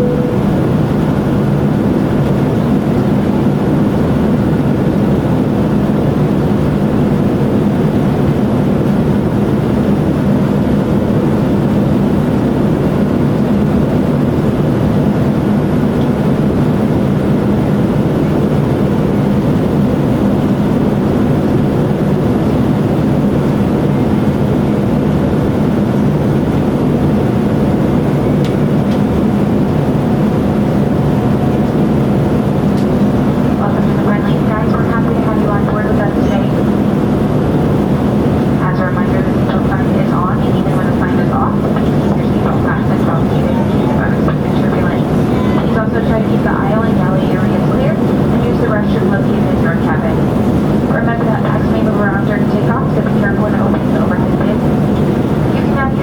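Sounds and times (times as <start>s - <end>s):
faint steady tones: 0.0s - 1.3s
aircraft cabin engine drone: 0.0s - 56.0s.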